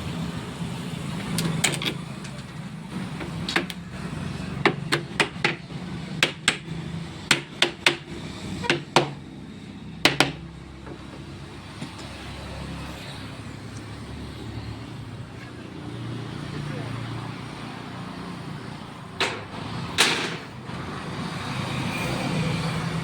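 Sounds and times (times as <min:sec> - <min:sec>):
hammer striking wood: 0:04.6 - 0:06.7, 0:07.3 - 0:09.2, 0:10.0 - 0:11.0.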